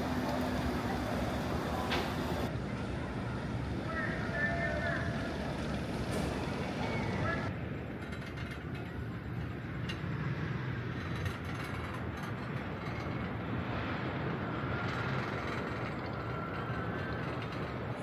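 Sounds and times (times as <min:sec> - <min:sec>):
chairlift cable rumbling over sheaves: 0:00.0 - 0:02.5.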